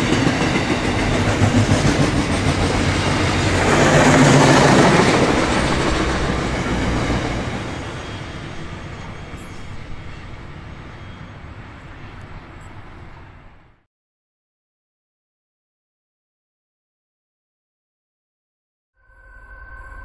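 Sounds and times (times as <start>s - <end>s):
freight train wheels rolling on rails: 0.0s - 13.8s.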